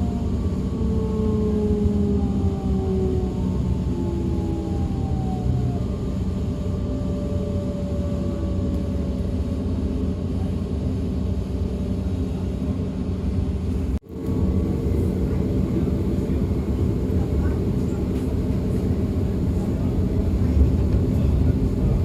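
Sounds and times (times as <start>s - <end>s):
train wheels rumbling on track: 7.4s - 22.0s.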